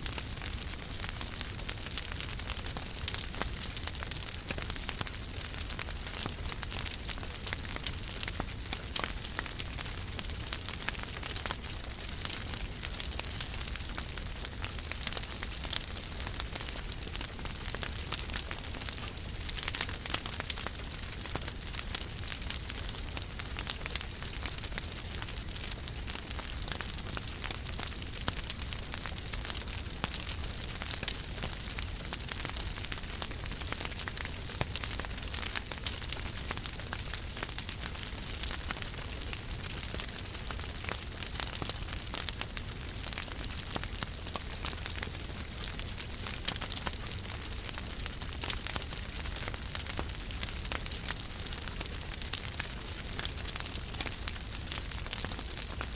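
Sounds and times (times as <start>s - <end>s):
wood fire crackling: 0.0s - 55.9s.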